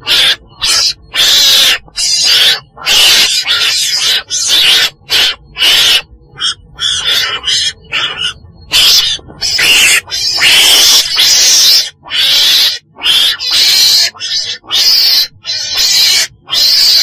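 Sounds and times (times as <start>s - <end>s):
weasel screechy cries: 0.0s - 17.0s.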